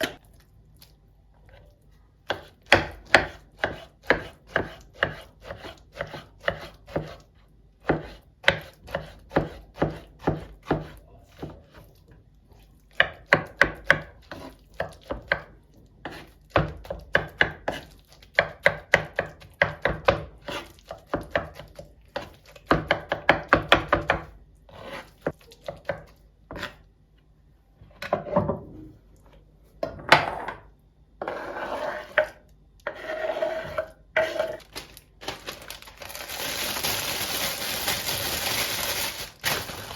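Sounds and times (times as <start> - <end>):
knife chopping on cutting board: 2.3 - 7.2, 7.8 - 11.6, 13.0 - 26.8.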